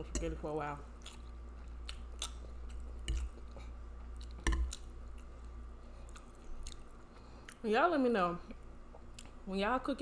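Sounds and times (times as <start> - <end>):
low steady hum: 0.0 - 10.0
wet chewing: 1.0 - 7.6.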